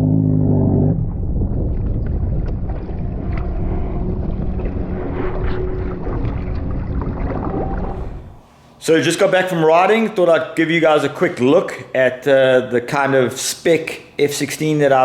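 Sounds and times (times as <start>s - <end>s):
wind on microphone: 0.9s - 8.4s
water splashing: 1.6s - 8.4s.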